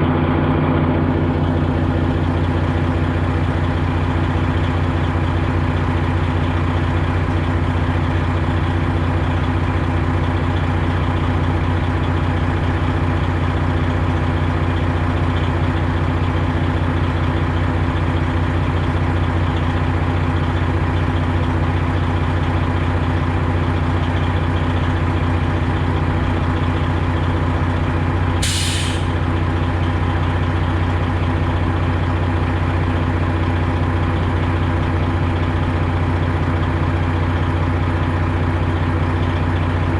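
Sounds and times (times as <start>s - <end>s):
truck diesel engine running: 0.0s - 39.9s
air hiss: 28.4s - 29.1s.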